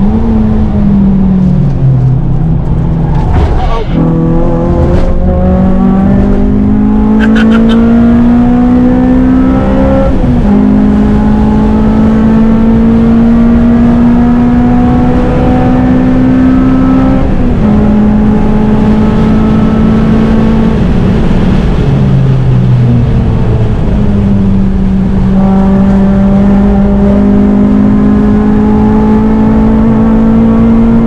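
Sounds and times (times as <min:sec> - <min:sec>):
car engine revving hard: 0:03.8 - 0:21.9, 0:25.1 - 0:31.0.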